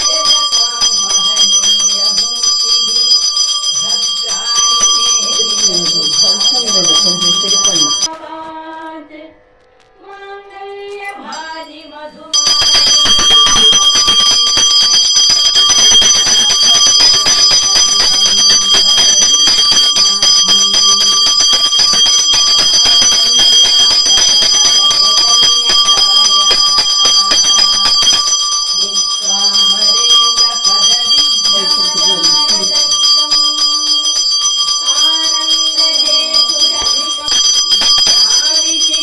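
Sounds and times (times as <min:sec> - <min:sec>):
hand bell ringing rapidly: 0:00.0 - 0:08.1, 0:12.4 - 0:39.0
person speaking: 0:04.7 - 0:08.1.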